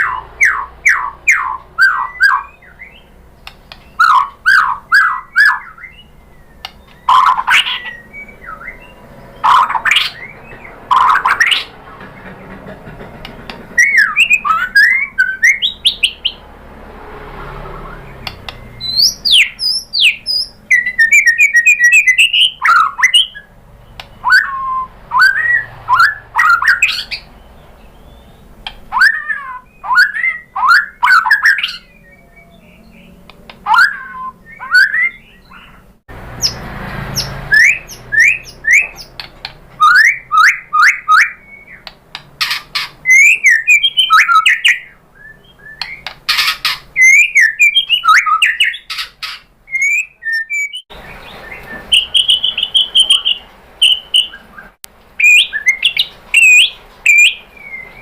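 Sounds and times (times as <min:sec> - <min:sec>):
bird whistling song: 0:00.0 - 0:11.8, 0:13.7 - 0:16.4, 0:17.5 - 0:58.0
bird trills: 0:00.0 - 0:16.4, 0:17.6 - 0:58.0
bird clicking notes: 0:03.4 - 0:05.2, 0:06.6 - 0:08.0, 0:18.2 - 0:18.8, 0:23.9 - 0:24.5.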